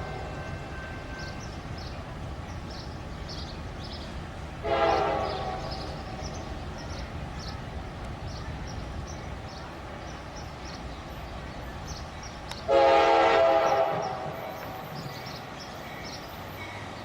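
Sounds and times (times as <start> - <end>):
low train rumble: 0.0 - 17.0
locomotive horn blast: 4.6 - 6.3, 12.7 - 14.8.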